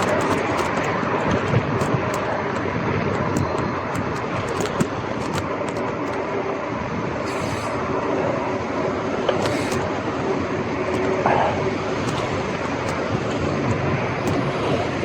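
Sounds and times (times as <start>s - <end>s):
rattling clicks: 0.0s - 6.3s, 7.2s - 7.9s, 9.2s - 10.2s, 10.8s - 14.5s
bicycle tyre and road noise: 0.0s - 15.0s.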